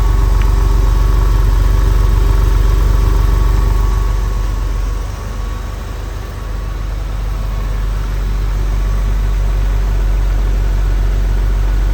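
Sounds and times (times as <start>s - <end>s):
car engine idling: 0.0s - 11.9s.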